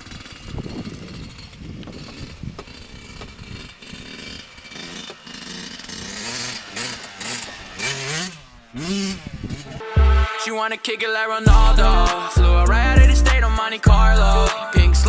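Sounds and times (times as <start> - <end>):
dirt bike engine running: 0.0 - 10.3, 11.5 - 15.0
music with rapped vocals: 10.0 - 15.0.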